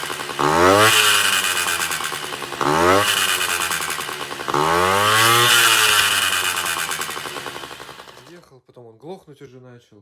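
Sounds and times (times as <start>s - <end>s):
engine chattering rattle: 0.0s - 8.3s
scooter engine revving: 0.0s - 8.3s.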